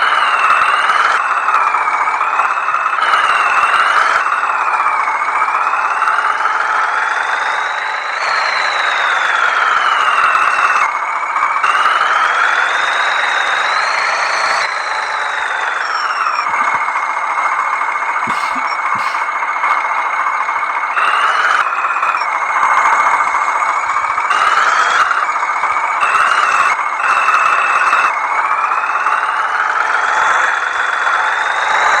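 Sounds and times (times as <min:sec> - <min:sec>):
tractor engine running hard: 0:00.0 - 0:32.0
high whine changing pitch: 0:12.1 - 0:25.4.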